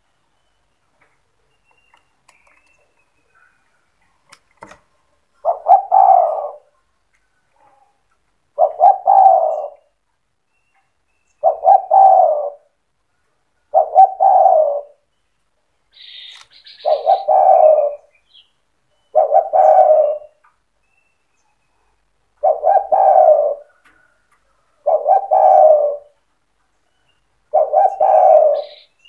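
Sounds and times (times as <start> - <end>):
bird chirp: 0.0 - 4.2, 5.4 - 12.4, 13.6 - 24.1, 24.9 - 29.0
dove cooing: 5.4 - 6.8, 8.5 - 10.0, 11.4 - 12.8, 13.7 - 15.1, 16.8 - 18.2, 19.1 - 20.4, 22.4 - 26.2, 27.5 - 29.0.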